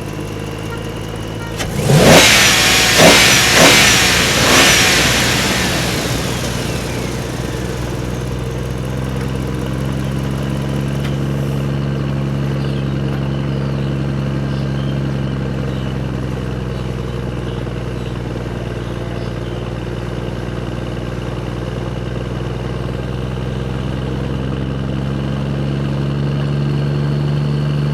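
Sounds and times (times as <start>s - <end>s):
engine revving: 0.0s - 11.7s
engine idling: 0.0s - 27.9s.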